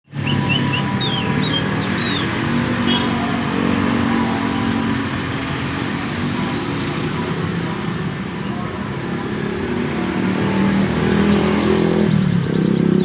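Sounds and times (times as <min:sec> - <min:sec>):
canary chirps: 0:00.1 - 0:03.0.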